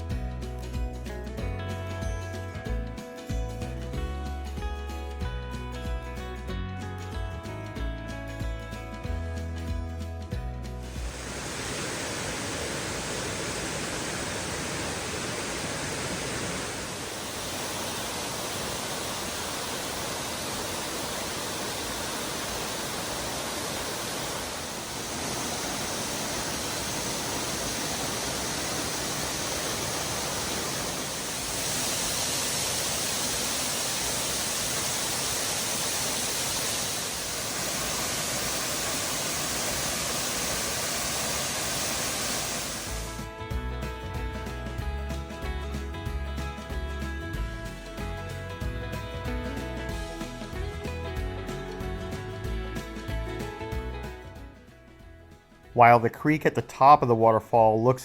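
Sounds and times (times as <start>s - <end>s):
waterfall crashing over rock: 10.9s - 43.2s.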